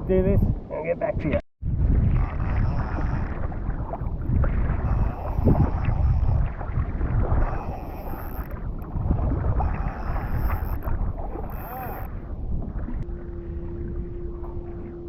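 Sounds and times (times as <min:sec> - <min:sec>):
wind buffeting microphone: 0:00.0 - 0:15.0
water sloshing around kayak: 0:01.6 - 0:15.0
heavy rumble: 0:12.0 - 0:15.0.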